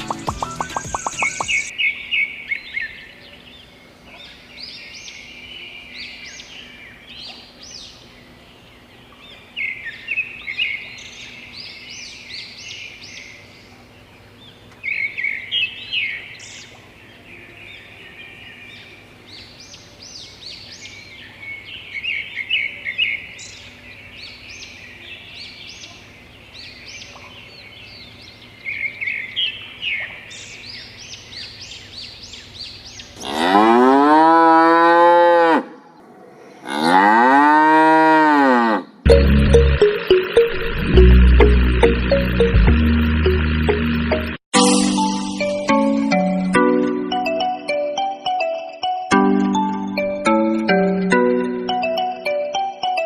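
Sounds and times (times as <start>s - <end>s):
small birds chirping: 0.0s - 33.3s.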